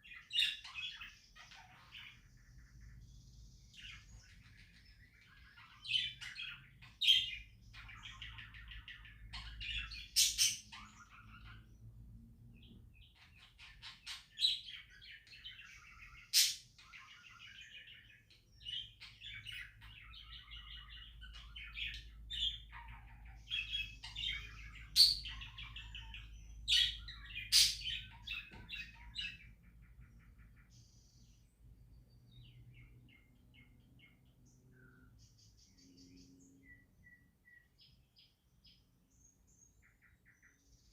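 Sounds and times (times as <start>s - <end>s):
budgerigars chattering and chirping: 0.0s - 12.0s, 12.6s - 31.4s.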